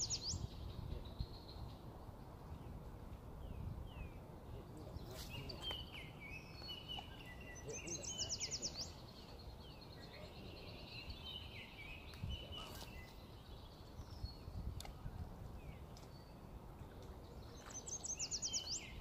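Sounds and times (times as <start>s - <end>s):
small birds singing and chirping: 0.0s - 19.0s
steady low background noise: 0.0s - 19.0s.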